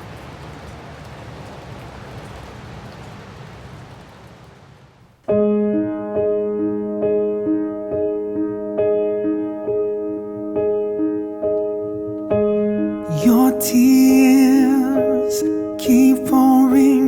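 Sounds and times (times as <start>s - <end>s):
steady rain: 0.0s - 5.4s, 13.0s - 17.0s
piano striking chords: 5.2s - 17.0s.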